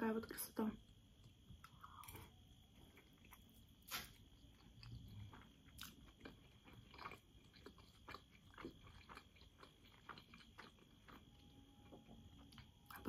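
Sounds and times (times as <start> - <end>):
faint chewing of soft food: 0.8 - 13.0.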